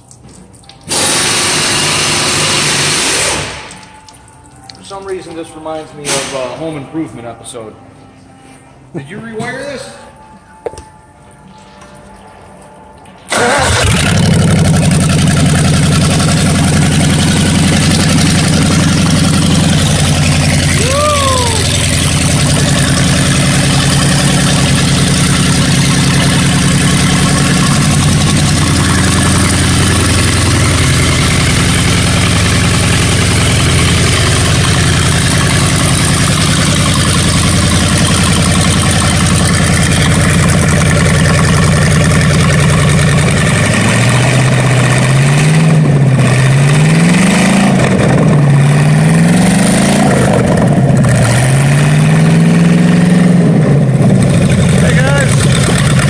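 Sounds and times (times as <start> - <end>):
car engine revving: 0.9 - 3.9, 13.3 - 56.0
car engine idling: 13.3 - 56.0.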